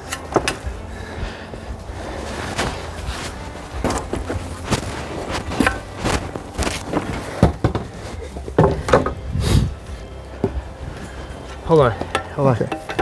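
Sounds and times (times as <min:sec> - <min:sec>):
footsteps: 0:00.0 - 0:13.0
knocks and clunks: 0:00.0 - 0:13.0.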